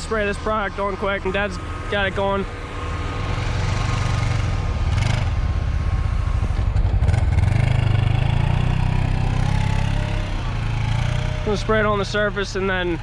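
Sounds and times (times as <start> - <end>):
farm machinery engine running: 0.0 - 13.0.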